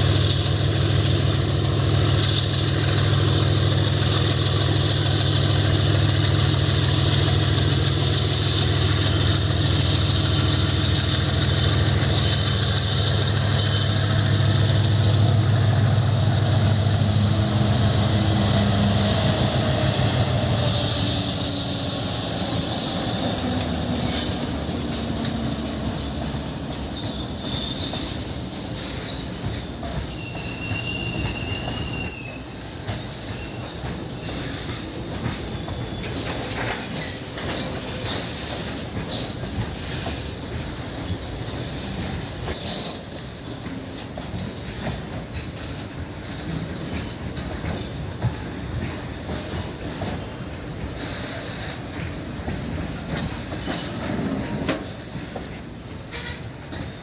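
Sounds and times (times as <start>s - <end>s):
diesel locomotive engine rumble: 0.0s - 57.0s
train coaches rolling: 0.0s - 57.0s
high-pitched wheel squeal: 20.5s - 38.4s.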